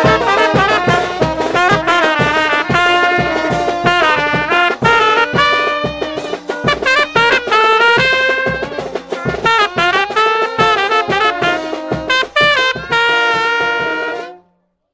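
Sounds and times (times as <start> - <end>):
drum beats: 0.0 - 14.4
trumpets and trombones melody: 0.0 - 14.5.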